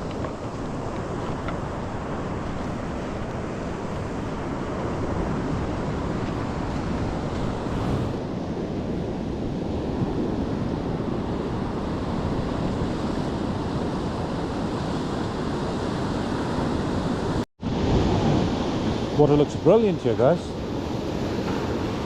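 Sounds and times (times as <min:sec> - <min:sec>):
wind buffeting microphone: 0:00.0 - 0:19.2
sea waves washing onto beach: 0:00.0 - 0:22.0.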